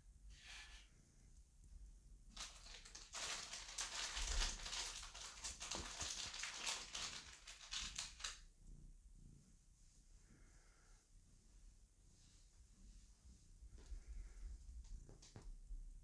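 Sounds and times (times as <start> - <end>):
bedding rustling and crackling: 2.3 - 8.4.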